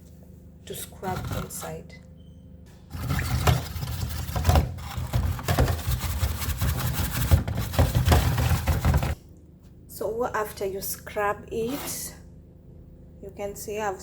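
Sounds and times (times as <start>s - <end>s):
steel wool scrubbing plastic tray: 2.9s - 9.2s.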